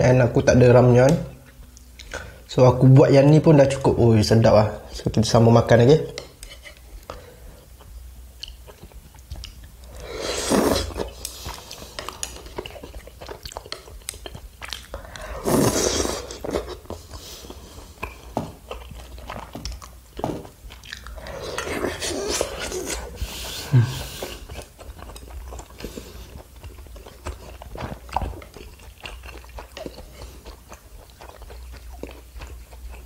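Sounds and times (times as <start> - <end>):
close chewing wet mouth clicks: 7.8 - 9.8, 11.2 - 15.2, 18.0 - 21.3.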